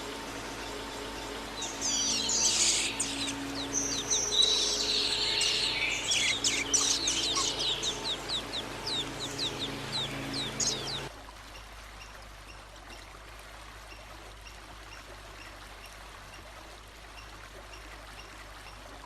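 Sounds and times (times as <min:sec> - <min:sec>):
songbird singing: 0:00.0 - 0:11.1.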